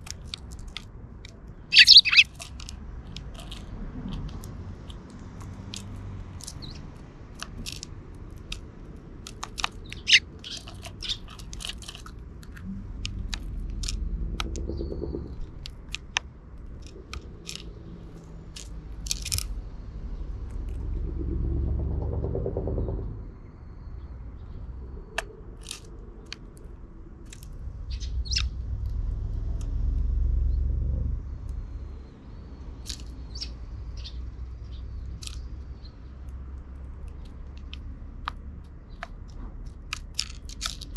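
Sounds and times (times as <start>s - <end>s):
low rumble of passing vehicles: 0.0s - 40.9s
sparrows chirping: 1.5s - 2.6s, 6.4s - 7.0s, 9.3s - 12.6s, 14.4s - 16.2s, 27.8s - 28.6s, 31.3s - 39.8s.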